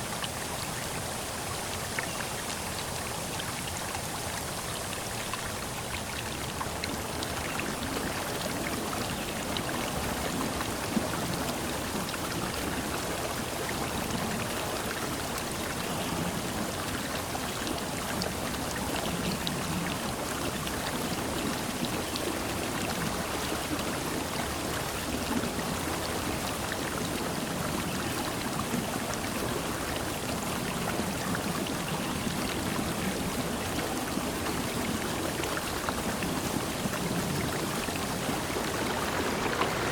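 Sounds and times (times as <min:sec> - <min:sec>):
faint drip-like ticks: 0:00.0 - 0:39.9
falling water rushing: 0:32.5 - 0:39.9.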